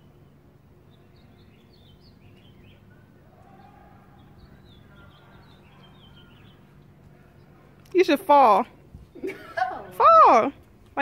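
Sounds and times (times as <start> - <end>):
birds chirping faintly: 0.0 - 11.0
low outdoor rumble: 0.0 - 11.0.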